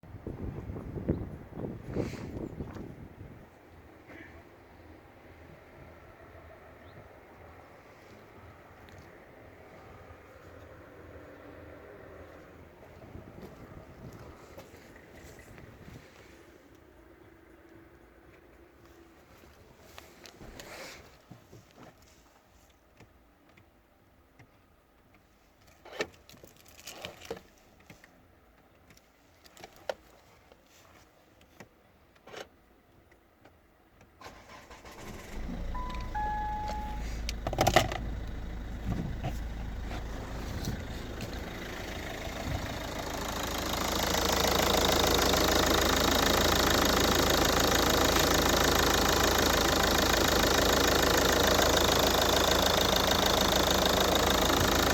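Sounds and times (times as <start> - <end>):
diesel engine starting and running: 34.2 - 54.9
short electronic beeps: 35.4 - 37.5.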